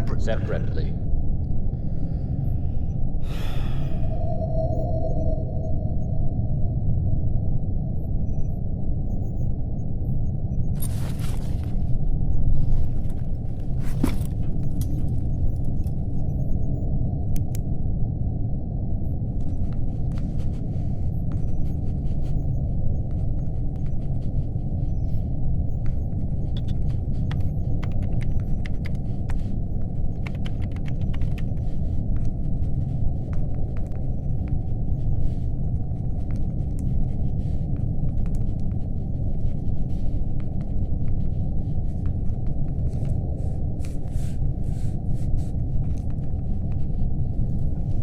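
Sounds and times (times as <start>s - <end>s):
low rumbling hum: 0.0s - 48.0s
laptop keyboard typing: 19.4s - 48.0s.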